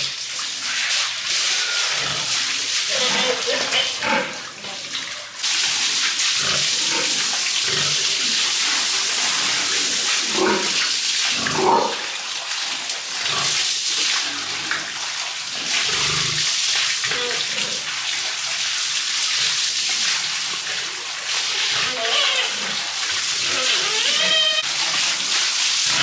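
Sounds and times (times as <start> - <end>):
water spraying: 0.0 - 26.0
pigs grunting: 1.3 - 5.3, 6.4 - 12.2, 13.2 - 13.6, 15.6 - 17.9, 21.5 - 24.7.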